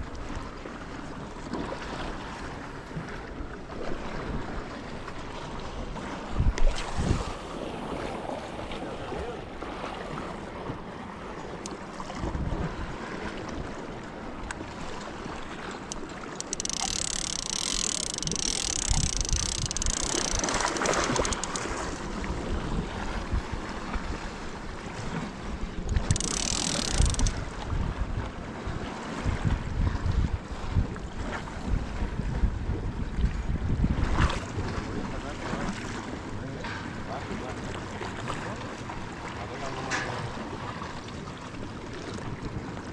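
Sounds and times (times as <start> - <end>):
surf on rocky shore: 0.0 - 42.9
wind buffeting microphone: 5.8 - 8.1, 11.6 - 37.0.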